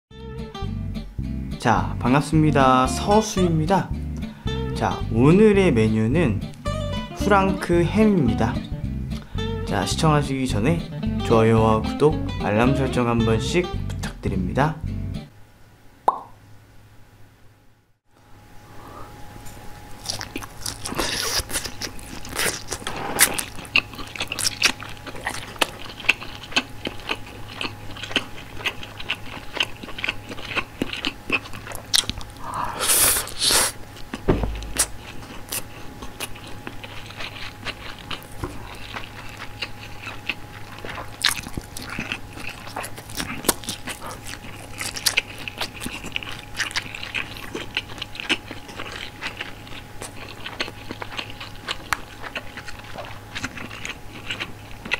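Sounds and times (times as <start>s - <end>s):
wet chewing and mouth clicks: 20.0s - 54.9s.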